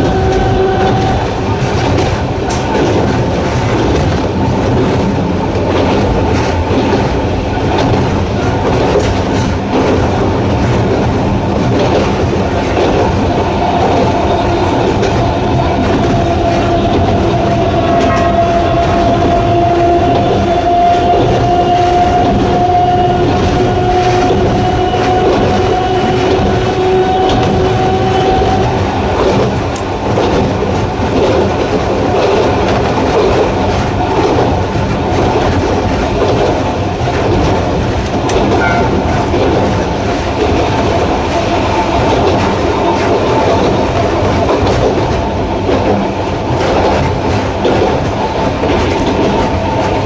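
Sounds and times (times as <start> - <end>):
train wheels clattering on rails: 0.0 - 50.0
train motors whining: 3.6 - 30.5.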